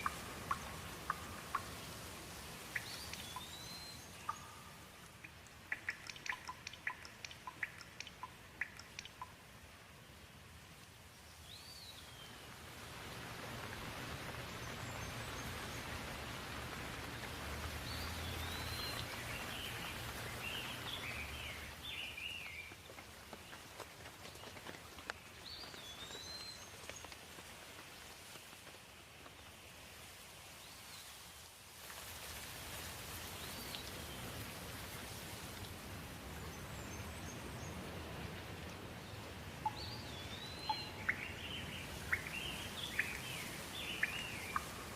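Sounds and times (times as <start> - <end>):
drops ticking: 0.0 - 1.8, 4.2 - 9.4
bird chirping: 0.0 - 2.0, 2.7 - 9.4, 17.8 - 22.8, 39.1 - 44.9
steady rain falling: 0.0 - 44.9.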